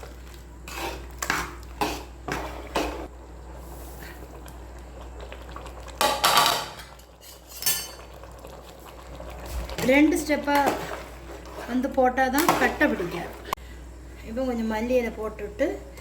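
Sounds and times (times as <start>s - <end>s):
spoon scraping in cooking pot: 0.6s - 3.1s.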